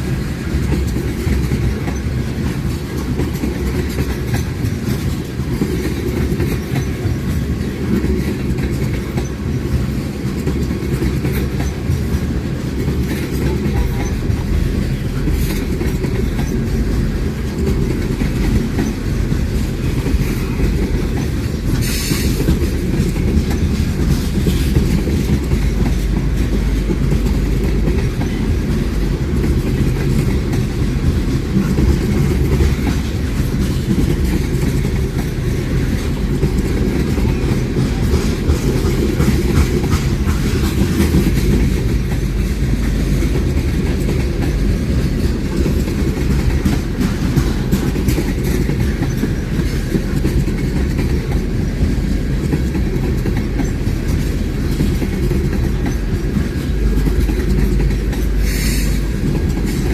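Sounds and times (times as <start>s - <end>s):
train wheels clacking on rails: 0.0s - 59.9s
high-pitched train squeal: 58.3s - 59.1s.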